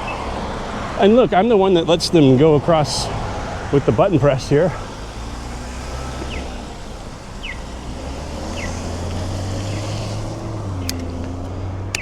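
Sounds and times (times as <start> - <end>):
crossing signal chirping: 0.0 - 12.0
idling traffic rumble: 0.0 - 12.0
sharp clicks: 8.4 - 12.0.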